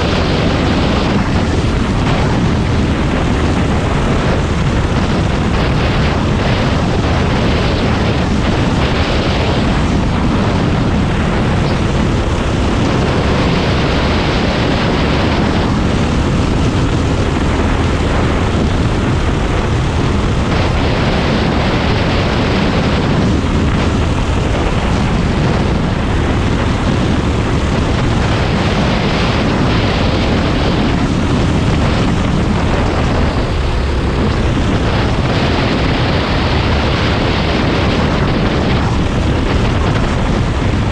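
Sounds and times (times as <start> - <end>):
kart engine running hard: 0.0 - 40.9.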